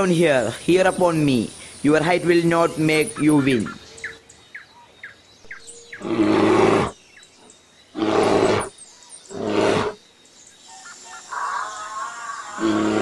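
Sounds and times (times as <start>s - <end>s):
big cat roaring: 6.0s - 7.0s, 7.9s - 8.7s, 9.3s - 10.0s, 12.6s - 13.0s.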